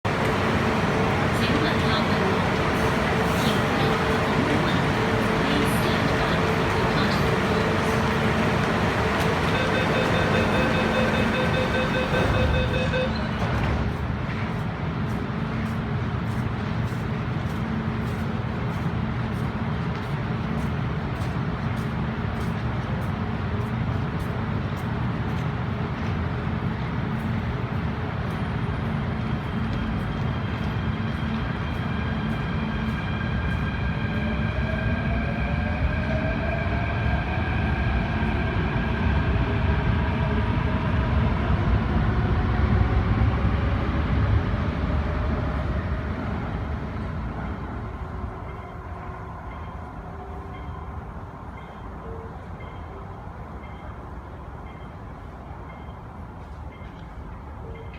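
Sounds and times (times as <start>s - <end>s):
rumble of train wheels: 0.0s - 57.9s
train inverters whining: 0.1s - 14.0s.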